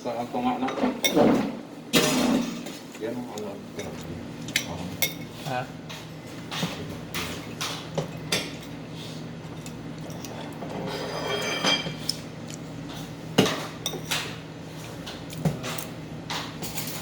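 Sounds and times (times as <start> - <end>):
cutlery clinking on plate: 10.1 - 12.0.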